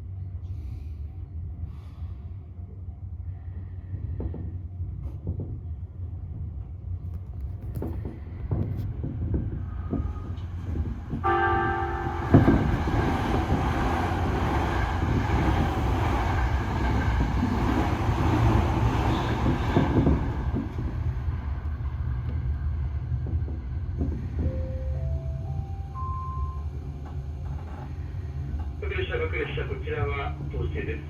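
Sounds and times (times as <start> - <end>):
low train rumble: 0.0 - 31.0
train passing with rushing noise: 2.4 - 31.0
train horn blast: 11.2 - 12.7.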